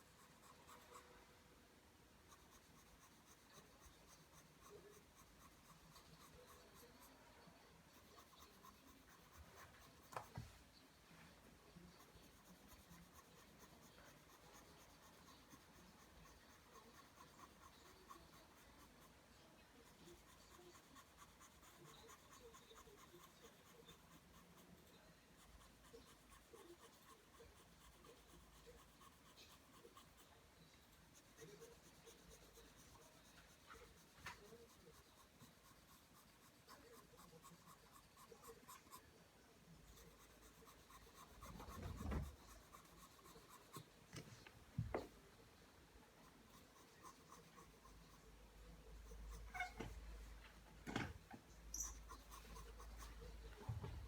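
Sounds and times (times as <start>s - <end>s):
pencil scratching on paper: 0.0s - 1.3s, 2.2s - 10.6s, 11.4s - 45.1s, 46.1s - 54.0s.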